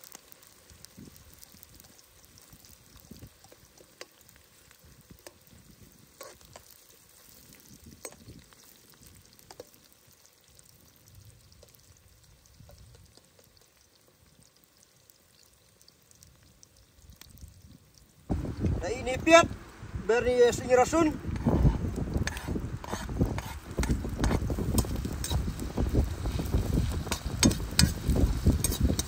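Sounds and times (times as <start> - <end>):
food sizzling in oil: 0.0 - 29.0
oil popping: 18.3 - 29.0.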